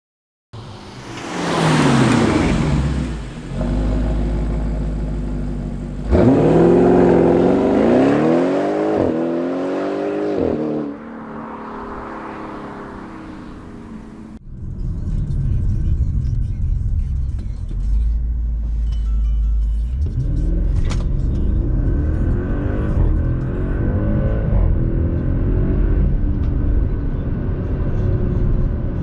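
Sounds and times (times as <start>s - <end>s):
car engine accelerating: 0.6s - 29.0s
low rumble: 11.0s - 29.0s.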